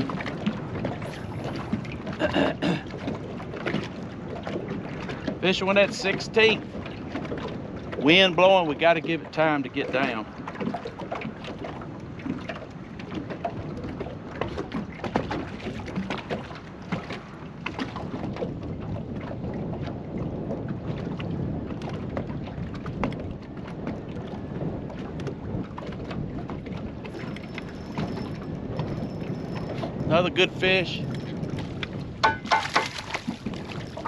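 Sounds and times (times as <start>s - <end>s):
water lapping against boat hull: 0.0s - 34.0s
hull knocks: 31.1s - 33.8s.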